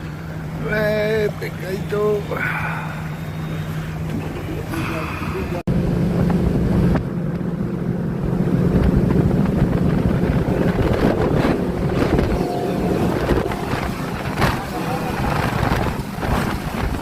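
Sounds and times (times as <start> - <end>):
motorboat engine running: 0.0 - 17.0
water noise: 0.0 - 17.0
wind buffeting microphone: 5.7 - 17.0.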